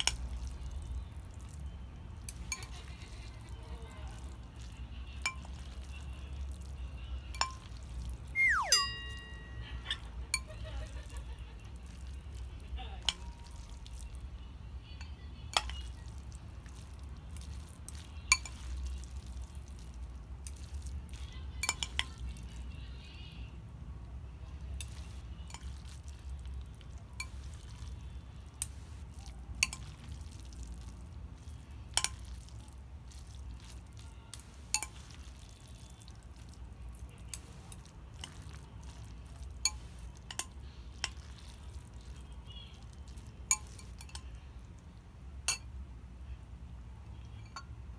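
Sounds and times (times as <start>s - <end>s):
utensils clinking on dishware: 34.7s - 35.2s, 43.5s - 44.3s.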